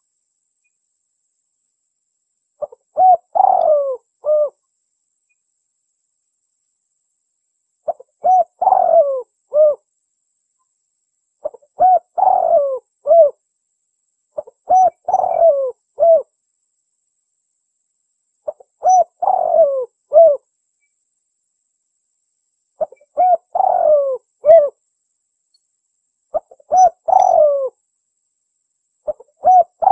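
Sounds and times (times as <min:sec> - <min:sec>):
dove cooing: 0:02.6 - 0:04.6, 0:07.9 - 0:09.8, 0:11.4 - 0:13.4, 0:14.4 - 0:16.3, 0:18.5 - 0:20.4, 0:22.8 - 0:24.8, 0:26.3 - 0:27.8, 0:29.1 - 0:29.9.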